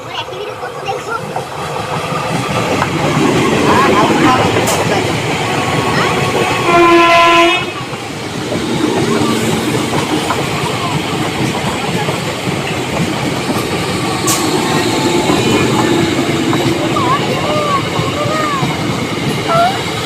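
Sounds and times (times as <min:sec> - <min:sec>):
train wheels on track: 0:00.0 - 0:20.0
train horn blast: 0:05.8 - 0:07.9.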